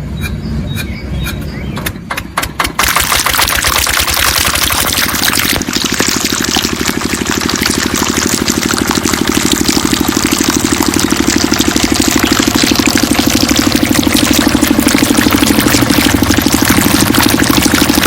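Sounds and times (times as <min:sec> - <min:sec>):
small pump engine running: 0:01.8 - 0:18.0.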